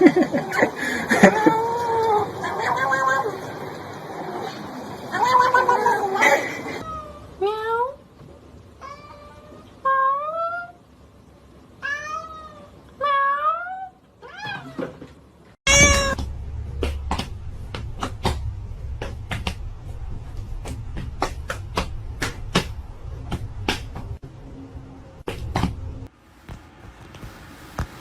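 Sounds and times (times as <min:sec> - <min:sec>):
cat meowing: 0:11.8 - 0:14.9, 0:15.7 - 0:16.2
low rumble: 0:15.7 - 0:26.1.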